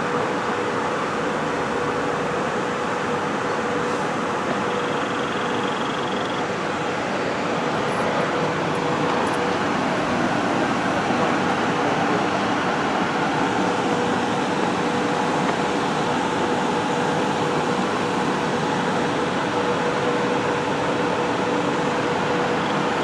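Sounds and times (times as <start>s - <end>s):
train equipment humming: 0.0s - 23.0s.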